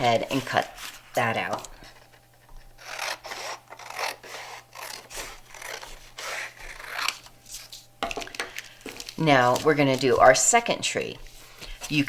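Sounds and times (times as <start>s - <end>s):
scissors cutting paper: 2.8s - 7.8s, 9.1s - 10.6s.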